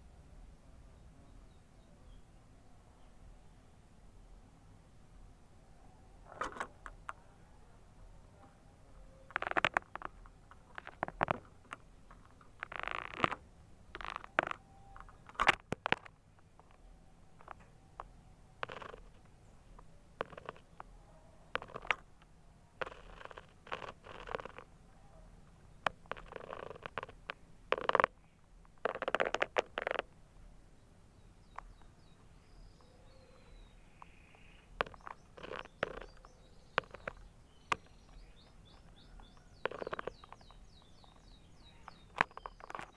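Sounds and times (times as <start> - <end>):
canary clicks and rattles: 9.1 - 19.4, 20.2 - 24.7, 25.8 - 30.1, 31.5 - 42.9
canary singing rattling notes: 31.2 - 42.9.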